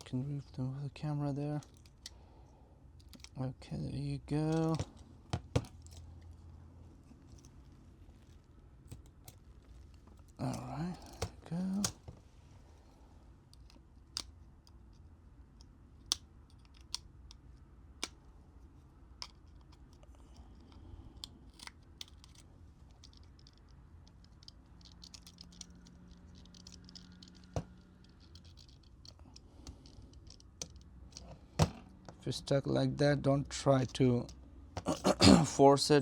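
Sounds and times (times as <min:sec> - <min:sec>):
low steady hum: 0:00.0 - 0:36.0
clicks and taps of small tools: 0:19.1 - 0:32.2.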